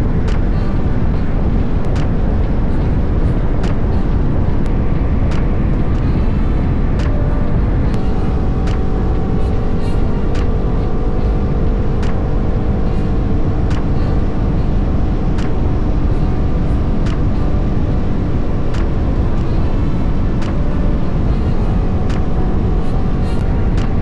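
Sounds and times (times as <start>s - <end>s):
wind noise on microphone: 0.0s - 24.0s.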